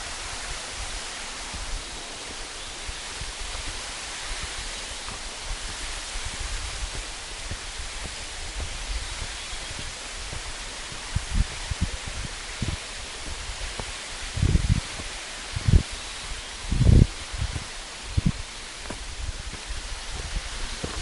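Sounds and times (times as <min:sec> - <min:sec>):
waterfall rushing: 0:00.0 - 0:21.0
low thumps on microphone: 0:04.4 - 0:15.8.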